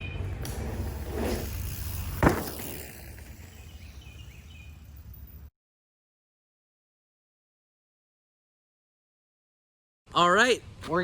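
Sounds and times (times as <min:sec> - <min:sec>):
sharp thud: 0:02.1 - 0:03.2.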